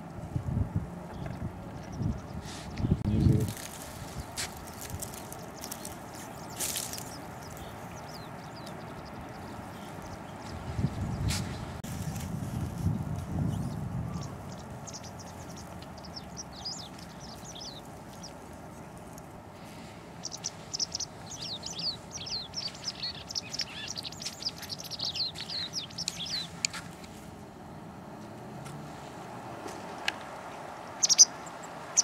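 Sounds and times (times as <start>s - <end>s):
faint hiss of open air: 2.1s - 32.0s
small songbird twittering: 4.1s - 11.6s, 13.4s - 18.4s, 20.2s - 26.8s, 31.0s - 32.0s.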